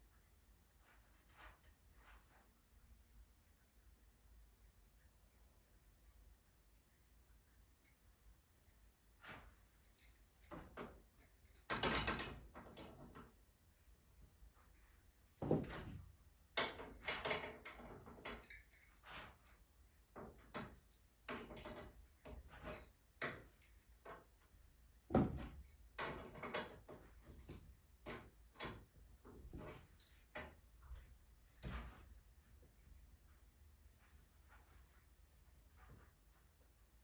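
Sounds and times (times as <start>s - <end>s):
metallic clinks of tools: 16.6s - 19.6s.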